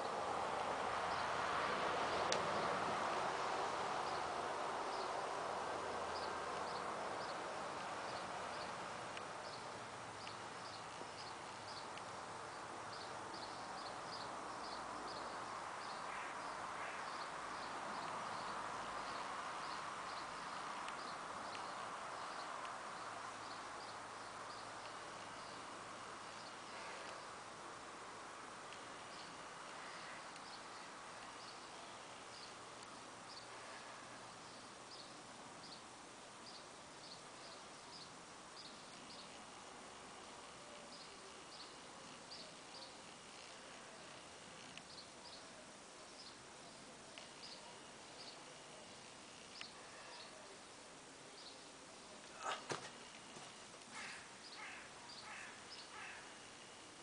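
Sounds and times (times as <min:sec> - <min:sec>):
steady background hiss: 0:00.0 - 0:57.0
bird chirping: 0:09.4 - 0:25.7.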